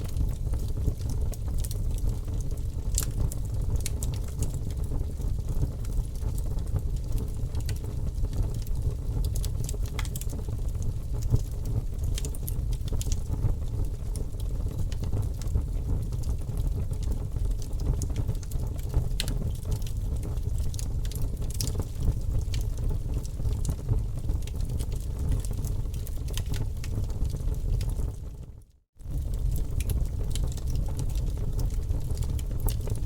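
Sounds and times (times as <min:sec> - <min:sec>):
fire crackling in a fireplace: 0:00.0 - 0:33.0.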